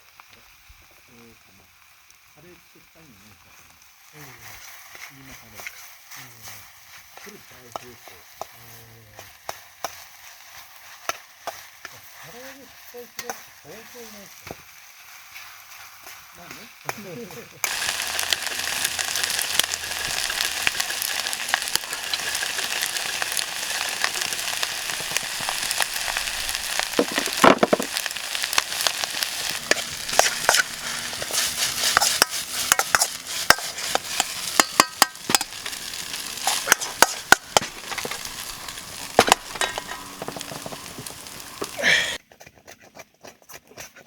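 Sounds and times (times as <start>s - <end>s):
food sizzling in a pan: 0.0s - 42.2s
utensil clicking and scraping: 17.7s - 41.8s.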